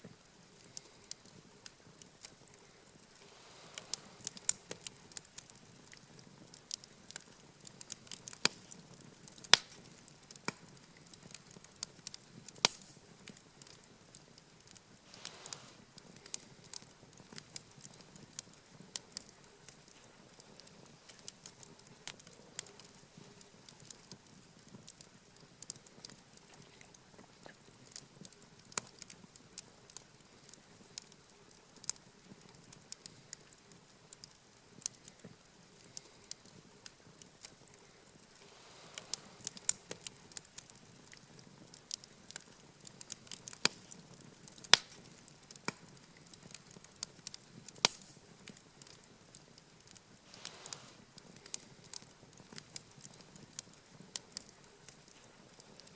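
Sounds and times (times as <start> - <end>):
soft rush of flame: 0.0 - 25.0, 33.0 - 46.5, 49.8 - 55.9
campfire crackling and popping: 0.0 - 55.9.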